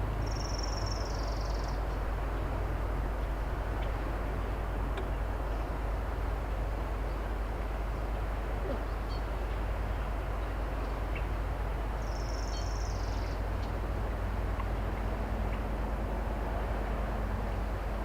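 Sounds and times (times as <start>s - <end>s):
excavator engine drone: 0.0s - 7.6s.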